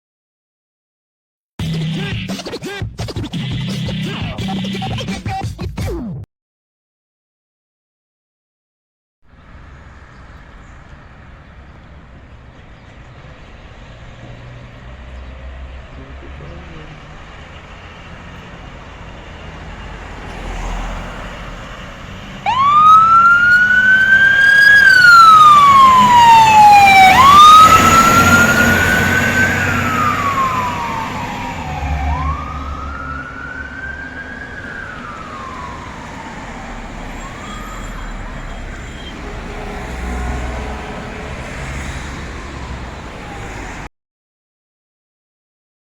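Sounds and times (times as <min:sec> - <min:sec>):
low engine rumble: 0:09.3 - 0:39.6
fire truck siren wailing: 0:09.5 - 0:43.9.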